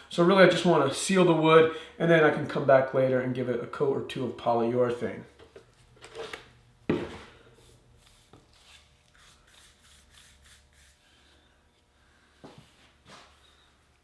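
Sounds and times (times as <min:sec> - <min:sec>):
rubbing strokes on wood: 0:07.6 - 0:11.4.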